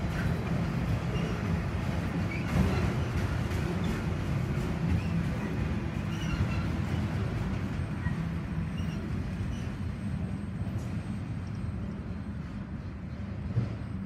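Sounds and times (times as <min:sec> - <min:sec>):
steel wheels rumbling on rails: 0:00.0 - 0:14.0
faint high squeaks: 0:05.0 - 0:07.2, 0:07.9 - 0:09.9.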